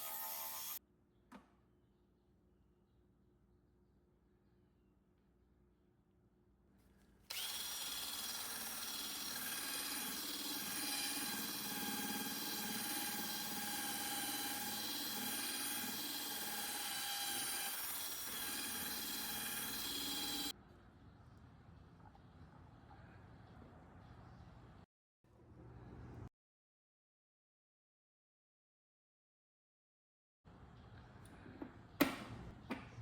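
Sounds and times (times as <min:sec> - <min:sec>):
power tool whining: 0:00.0 - 0:00.8, 0:07.3 - 0:20.5.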